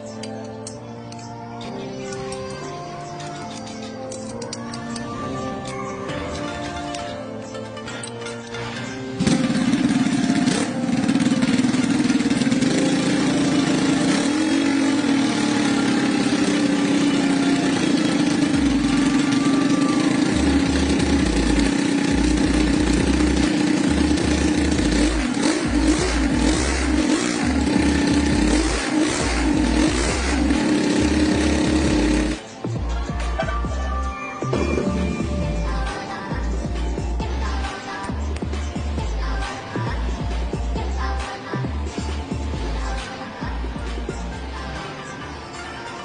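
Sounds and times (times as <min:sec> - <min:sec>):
engine revving: 0:09.1 - 0:32.5.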